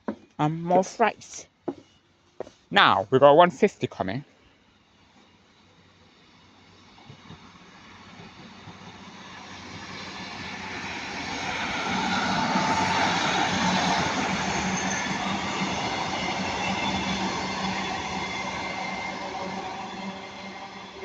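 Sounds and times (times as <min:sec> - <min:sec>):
train passing on rails: 0:04.6 - 0:21.0.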